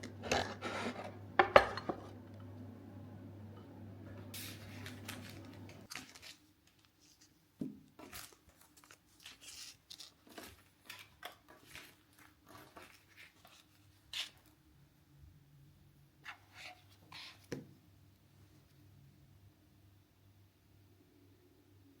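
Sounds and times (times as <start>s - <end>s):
small objects clicking and rustling: 4.4s - 7.2s, 8.0s - 13.6s.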